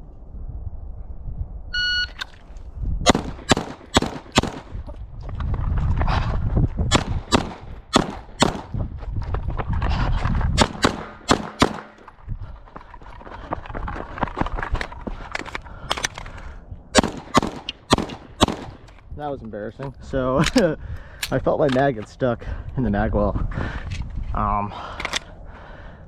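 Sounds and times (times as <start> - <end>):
shot timer beep: 1.8 - 2.2
pistol shots: 3.1 - 4.8, 6.9 - 8.7, 10.6 - 12.0, 17.0 - 18.9.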